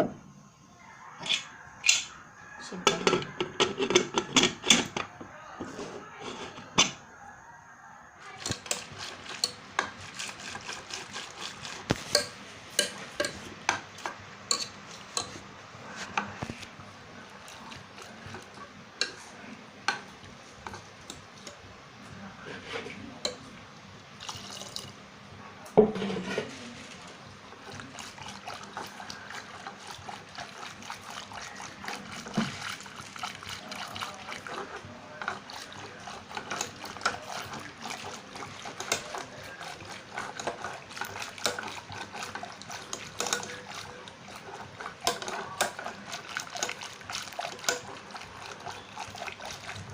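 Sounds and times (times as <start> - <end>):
pot and utensils clinking: 2.8 - 5.1, 6.2 - 7.0, 8.2 - 15.4, 25.8 - 49.9
water pouring and sloshing: 16.4 - 18.7, 24.2 - 25.0, 26.2 - 49.9.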